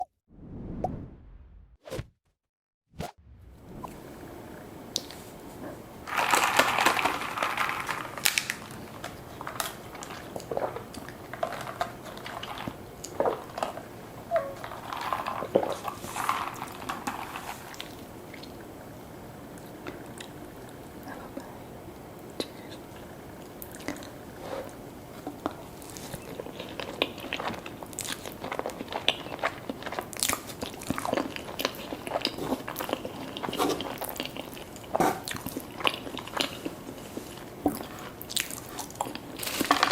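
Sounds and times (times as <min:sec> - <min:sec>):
person chewing crunchy food: 0:06.1 - 0:13.9, 0:23.0 - 0:39.9.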